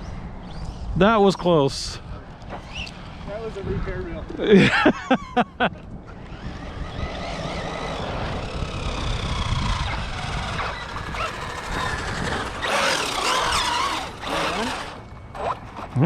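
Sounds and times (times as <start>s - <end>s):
rc car motor whine: 0.0s - 4.7s, 5.5s - 16.0s.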